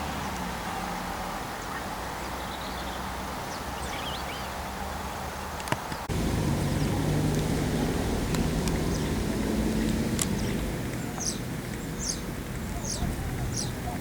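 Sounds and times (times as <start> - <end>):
small birds chirping: 0.1 - 14.0
airliner engine drone: 6.1 - 11.6.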